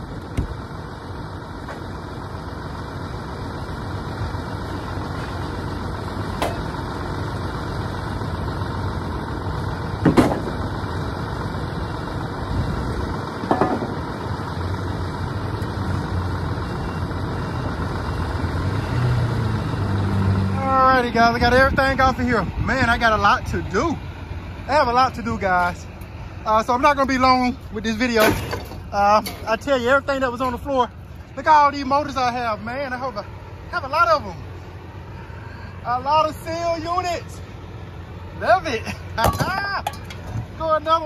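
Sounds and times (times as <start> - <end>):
engine idling: 0.0 - 19.8, 20.5 - 41.0
sharp metal clanks: 6.4 - 6.7, 28.2 - 29.6.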